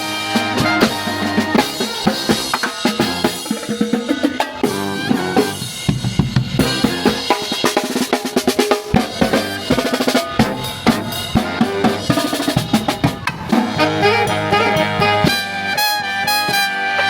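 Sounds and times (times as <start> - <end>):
drum kit playing: 0.0 - 17.0
sustained horn notes: 4.6 - 5.9, 9.3 - 17.0.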